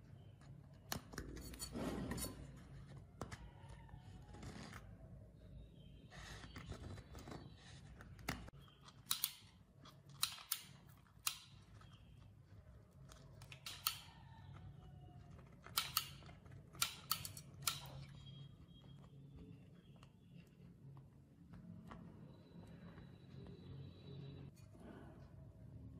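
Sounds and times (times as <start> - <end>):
faint low hum: 0.0 - 25.9
sharp clicks and snaps: 8.0 - 12.3, 13.0 - 14.6, 15.3 - 18.2.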